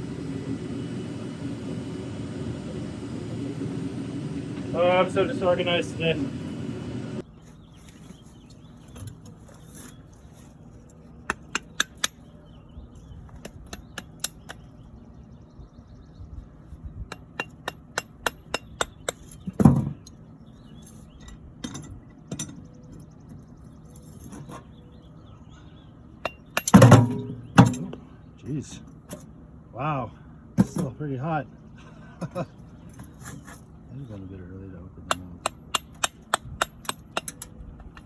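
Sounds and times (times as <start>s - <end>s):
hand tool striking metal: 11.3s - 12.2s, 13.4s - 14.6s, 17.1s - 19.7s, 26.2s - 28.0s, 35.1s - 38.0s.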